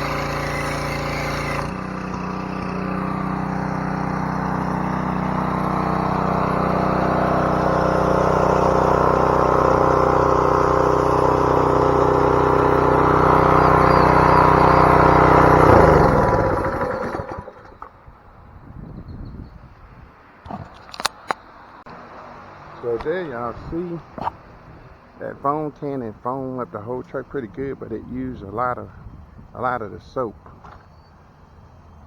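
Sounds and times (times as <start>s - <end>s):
pressure washer engine running: 0.0s - 17.8s.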